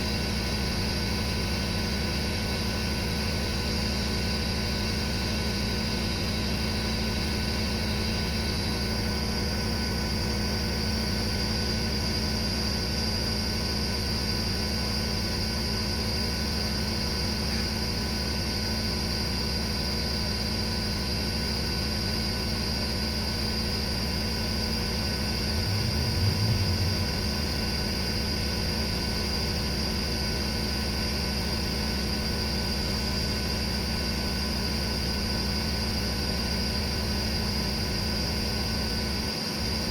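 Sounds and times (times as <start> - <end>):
pressure washer running: 0.0 - 38.4
low rumble: 25.4 - 28.7.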